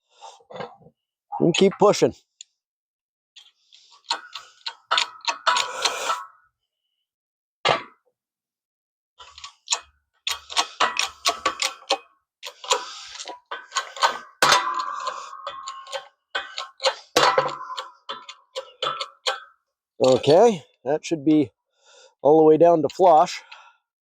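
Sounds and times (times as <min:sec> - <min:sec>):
hand press squeaky creaks: 0:03.4 - 0:06.4, 0:09.2 - 0:20.5.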